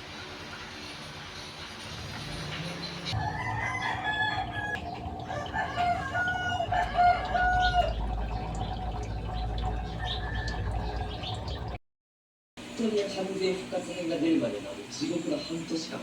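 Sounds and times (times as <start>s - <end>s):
chicken calling: 3.2s - 11.7s.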